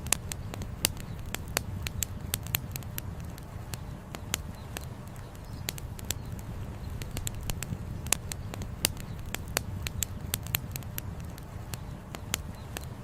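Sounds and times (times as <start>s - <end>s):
campfire wood crackling: 0.0s - 13.0s.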